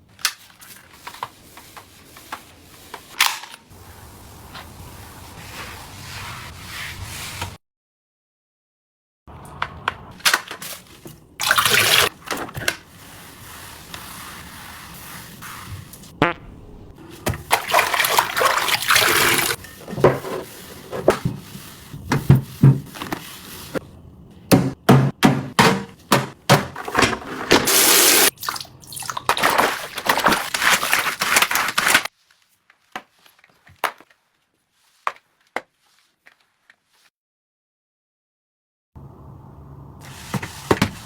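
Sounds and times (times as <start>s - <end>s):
water running from tap: 17.6s - 19.6s, 27.7s - 29.2s
knocks and clatter of handling: 19.6s - 23.3s.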